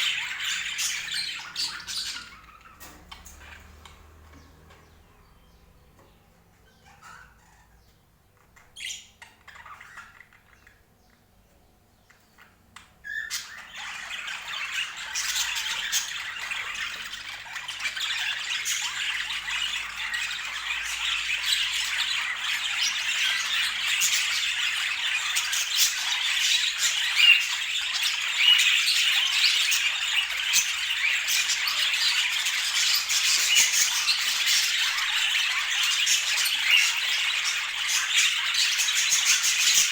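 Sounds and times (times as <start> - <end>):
budgerigars chattering: 0.0 - 11.3, 12.0 - 39.9.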